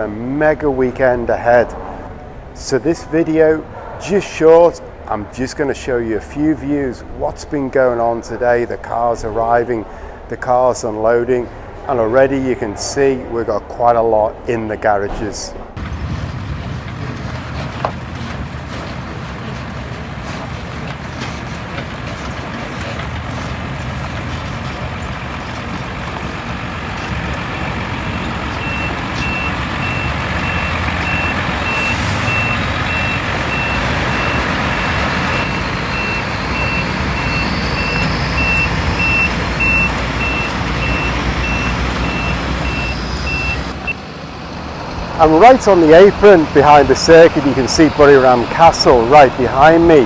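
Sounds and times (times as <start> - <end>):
truck engine rumble: 15.8 - 50.0
truck reversing alarm beeps: 20.6 - 50.0.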